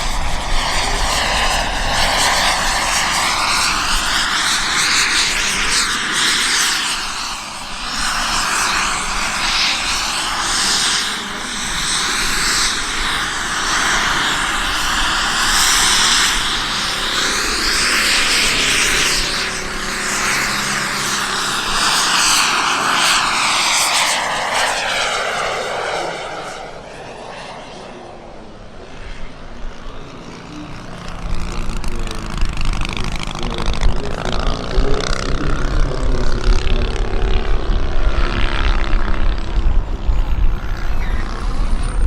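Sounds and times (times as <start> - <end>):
jet turbine engine whine: 0.0 - 42.0
wind rumble on microphone: 29.2 - 42.0.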